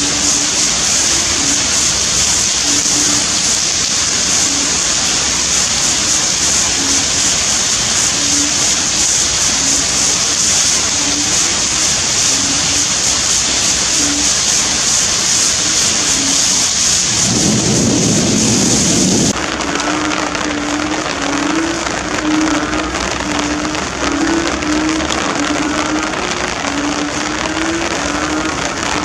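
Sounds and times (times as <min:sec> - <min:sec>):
heavy rain hissing: 0:00.0 - 0:29.0
low thunder rumble: 0:00.0 - 0:29.0.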